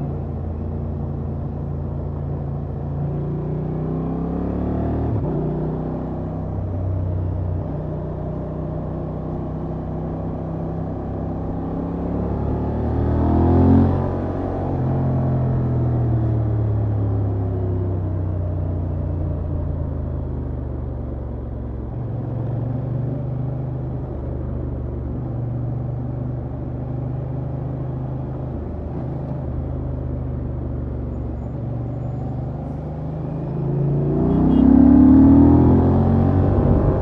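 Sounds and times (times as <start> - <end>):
motorcycle engine revving: 32.4 - 37.0.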